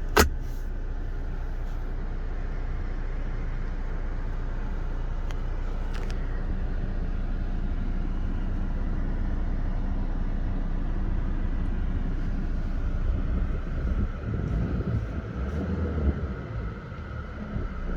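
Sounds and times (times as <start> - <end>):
vehicle engine idling: 0.0 - 17.9
uneven low rumbling: 11.0 - 17.9.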